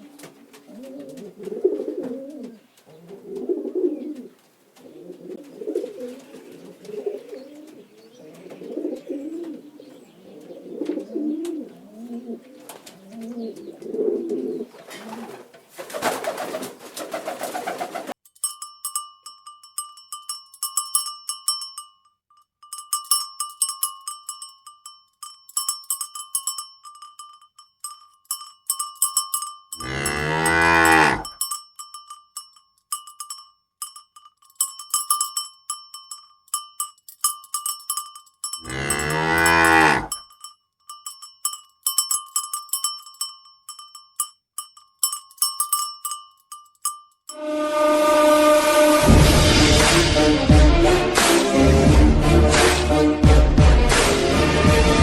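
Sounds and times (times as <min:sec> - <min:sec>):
cowbell clanking: 0:18.3 - 0:47.5
cow mooing: 0:29.8 - 0:31.4, 0:38.6 - 0:40.2
low sound: 0:47.4 - 0:55.0.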